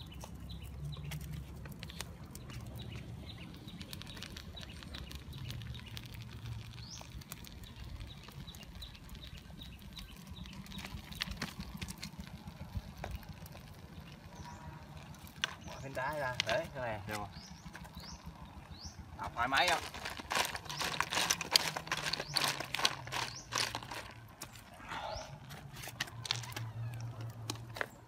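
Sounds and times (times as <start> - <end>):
snail shells crackling in tin: 0.0 - 24.5, 25.9 - 28.0
wooden stick stirring: 19.6 - 24.6.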